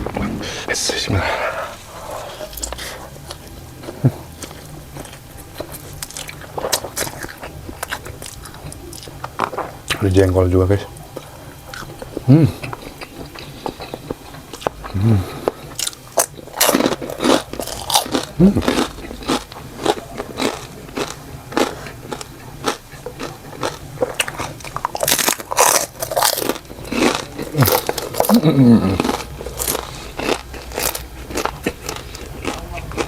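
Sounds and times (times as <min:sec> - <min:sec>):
chewing crunchy food: 0:00.0 - 0:33.0.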